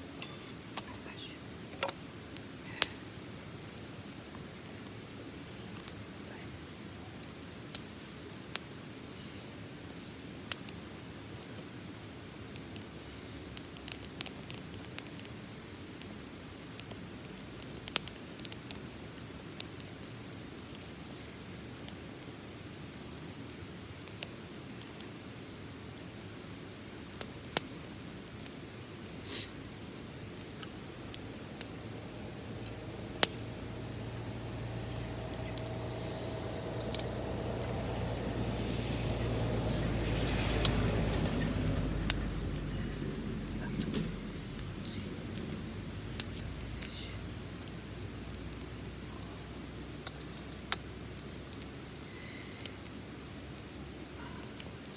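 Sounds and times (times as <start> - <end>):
fire crackling and popping: 0.0 - 54.9
wood fire rumbling: 0.0 - 54.9
low rumble: 30.8 - 48.9.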